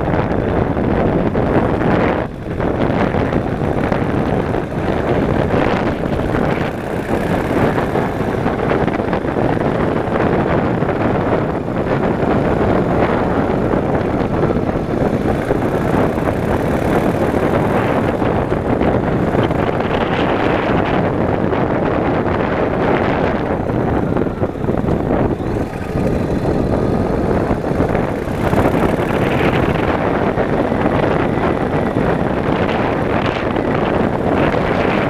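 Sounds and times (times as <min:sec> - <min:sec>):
motorcycle engine: 0:00.0 - 0:35.0
road noise: 0:00.0 - 0:35.0
wind rushing over microphone: 0:00.0 - 0:35.0.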